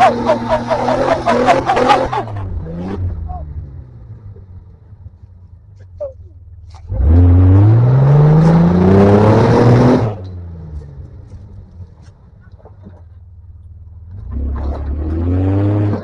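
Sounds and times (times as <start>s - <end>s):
engine revving: 0.0s - 4.6s, 6.6s - 11.1s, 14.1s - 16.0s.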